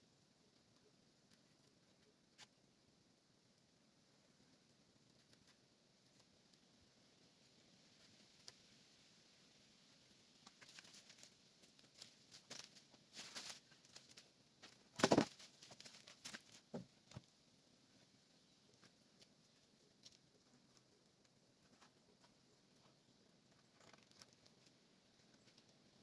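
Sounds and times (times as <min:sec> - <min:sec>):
rustling and crackling clicks: 0:10.4 - 0:17.3, 0:18.6 - 0:26.0.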